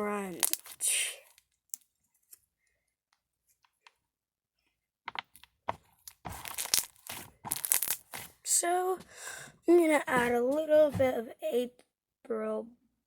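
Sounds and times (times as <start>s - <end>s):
crunchy slime crackling and popping: 0.1s - 1.9s, 5.1s - 8.4s.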